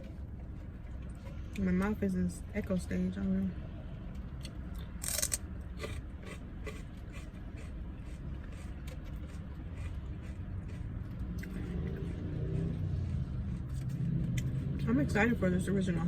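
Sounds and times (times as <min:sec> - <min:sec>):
chewing and crunching food: 0:04.0 - 0:15.1.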